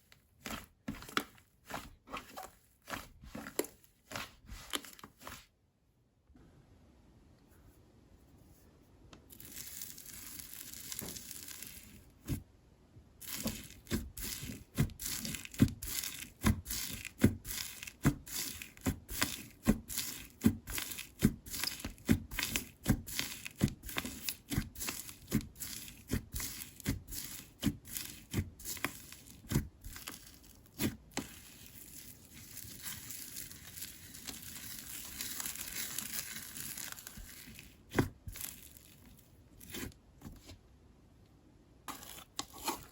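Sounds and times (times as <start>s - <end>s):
slime crinkling as it stretches: 9.3s - 12.0s, 13.2s - 39.9s
slime squishing with wet pops: 13.2s - 38.7s.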